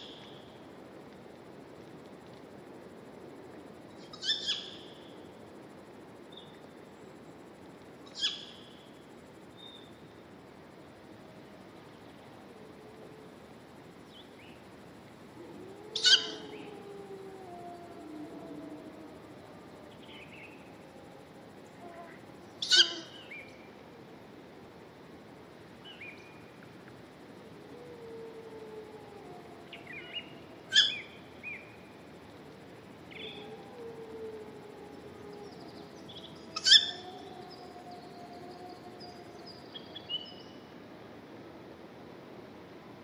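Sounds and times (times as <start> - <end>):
loud sharp bird calls: 22.6 - 23.2.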